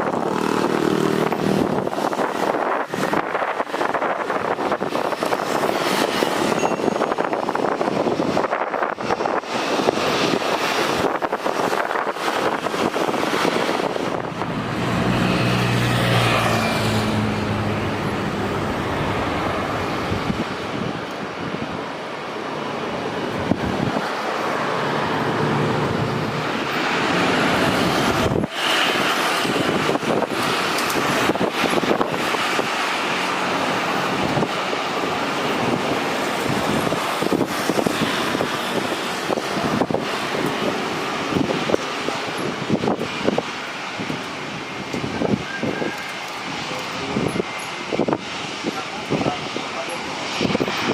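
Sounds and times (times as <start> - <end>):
jet engines roaring: 0.0 - 50.9
wind buffeting microphone: 0.0 - 50.9.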